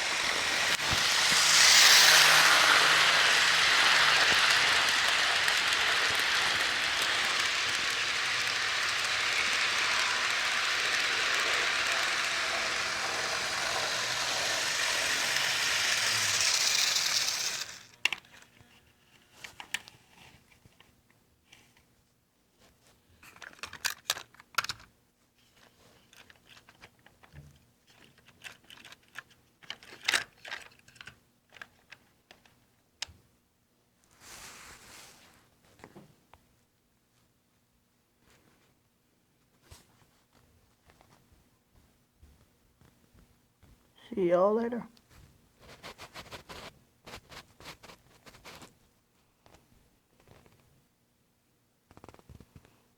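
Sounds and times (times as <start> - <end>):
model train running: 0.0 - 18.0.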